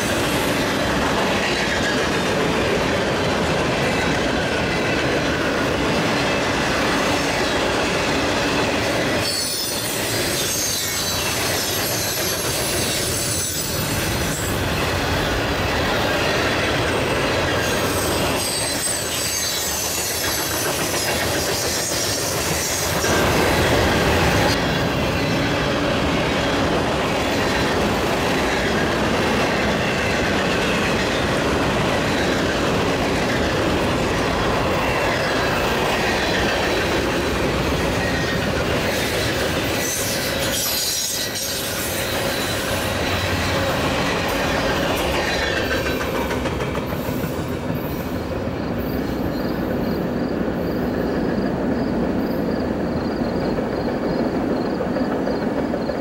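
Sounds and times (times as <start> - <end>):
train wheels rumbling on rail: 0.0 - 56.0
high-pitched wheel squeals: 9.2 - 14.6, 17.6 - 23.3, 39.8 - 43.0.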